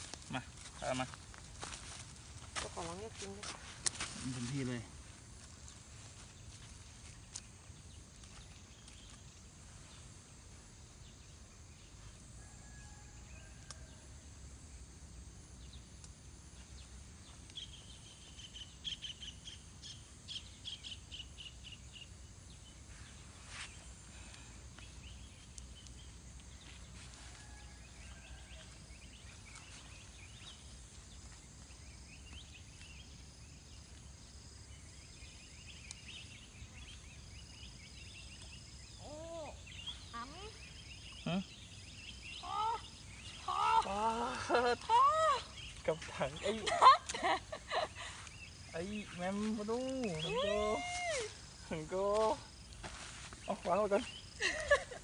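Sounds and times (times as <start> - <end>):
high insect drone: 0.0 - 55.0
birds calling: 28.3 - 55.0.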